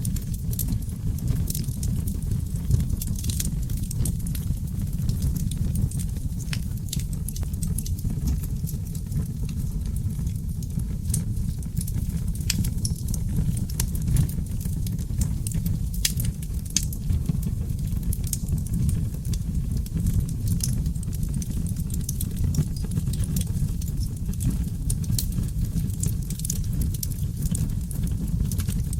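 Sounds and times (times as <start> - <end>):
fire crackling and popping: 0.0 - 28.9
fire flame rumble: 0.0 - 28.9.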